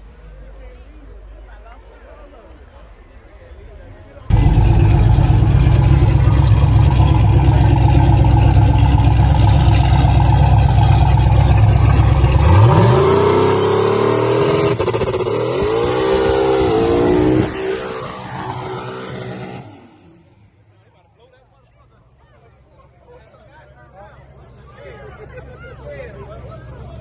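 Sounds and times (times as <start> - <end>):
car engine revving: 4.3 - 20.4.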